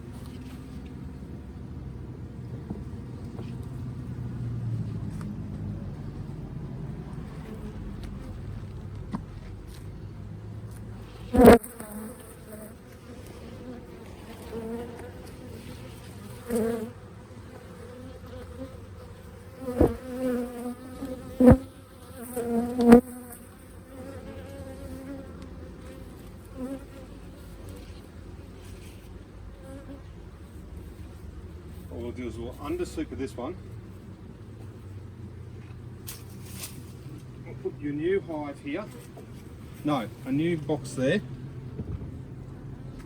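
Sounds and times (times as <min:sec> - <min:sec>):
soft bumps: 0:02.4 - 0:11.8
bees buzzing: 0:11.0 - 0:35.4.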